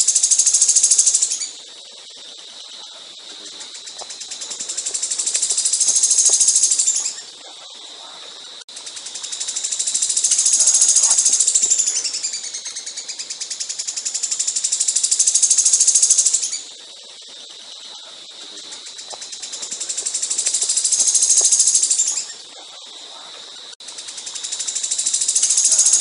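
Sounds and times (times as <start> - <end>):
songbird trilling: 3.6 - 7.3, 9.1 - 16.6, 18.8 - 22.4, 24.3 - 26.0.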